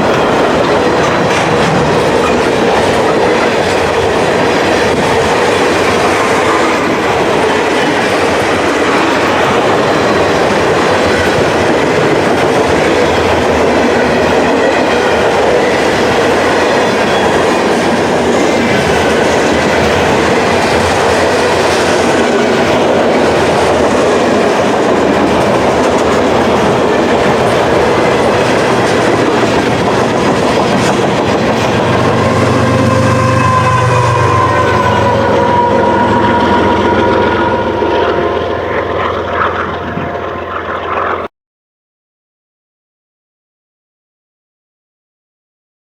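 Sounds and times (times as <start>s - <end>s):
train wheels clickety-clack: 0.0s - 41.3s
wind noise on microphone: 0.0s - 41.3s
higher tone: 31.5s - 40.9s.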